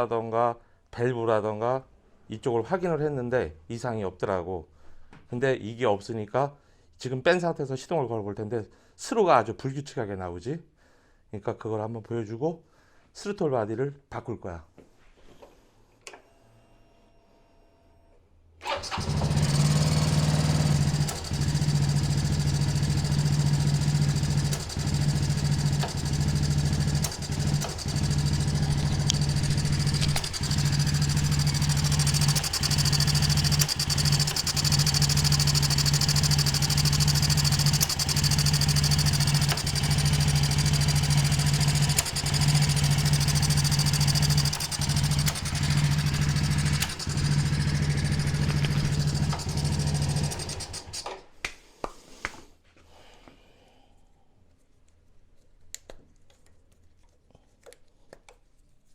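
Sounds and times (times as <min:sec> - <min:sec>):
engine starting and idling unevenly: 0:18.6 - 0:51.2.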